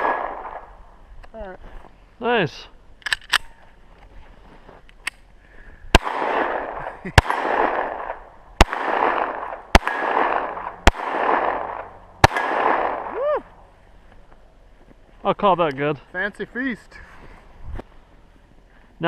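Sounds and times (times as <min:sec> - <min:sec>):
gunshots with echo: 0:00.0 - 0:00.7, 0:05.9 - 0:13.2.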